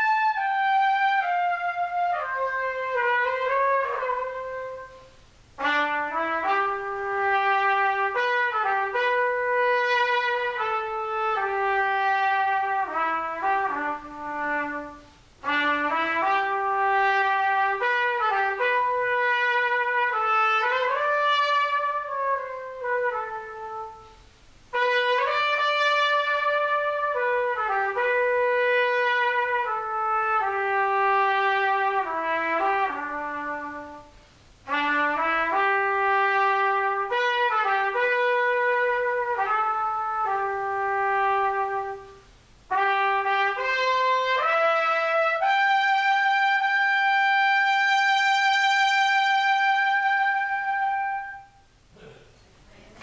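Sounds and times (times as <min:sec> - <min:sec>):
solo trumpet playing hymn melody: 0:00.0 - 0:51.9.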